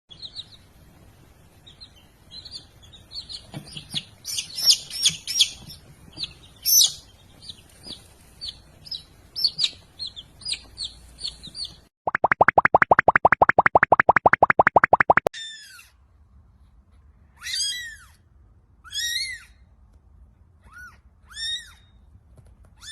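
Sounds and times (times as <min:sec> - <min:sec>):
small bird chirping: 0:01.6 - 0:11.8
rising plopping sound effects: 0:12.1 - 0:15.3.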